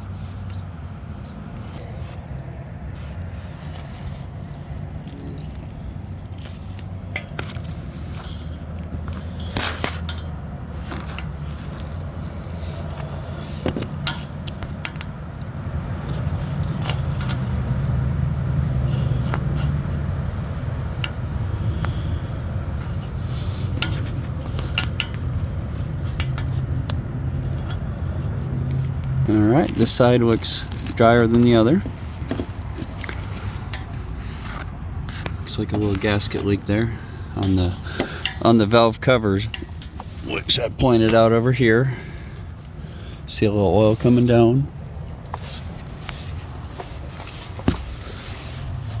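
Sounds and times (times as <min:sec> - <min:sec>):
metal scrapes and clinks: 0:06.3 - 0:15.2, 0:22.9 - 0:28.4, 0:29.8 - 0:40.4.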